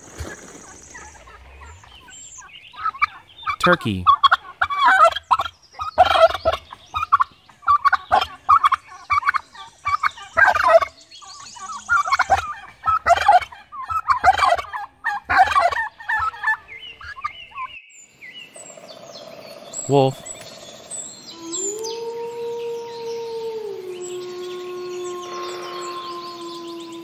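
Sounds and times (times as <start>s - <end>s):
turkey gobbling: 0.0s - 17.7s.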